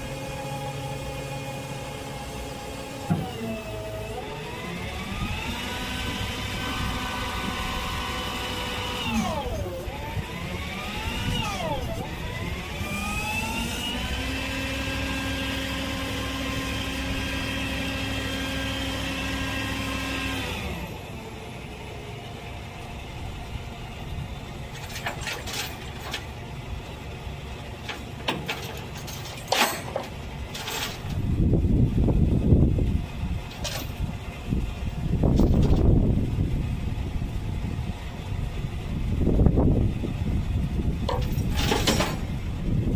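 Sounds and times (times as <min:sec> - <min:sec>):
truck engine revving: 0:00.0 - 0:21.2.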